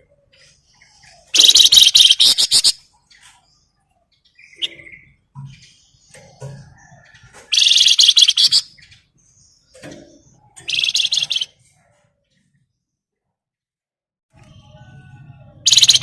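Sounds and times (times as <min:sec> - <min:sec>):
faint bird chirps: 0:00.0 - 0:13.0, 0:14.4 - 0:16.0
songbird rattling trills: 0:01.3 - 0:02.8, 0:06.3 - 0:09.0, 0:10.6 - 0:11.5, 0:15.6 - 0:16.0.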